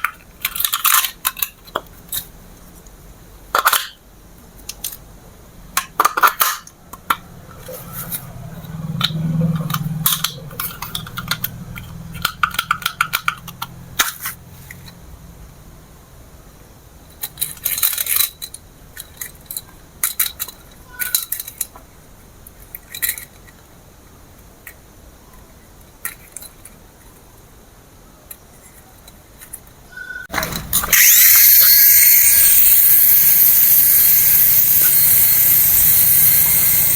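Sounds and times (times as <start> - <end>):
plastic toy parts clicking and rattling: 0.0 - 5.1, 5.7 - 15.0, 17.1 - 27.4, 28.2 - 36.9
low hum: 6.9 - 16.2.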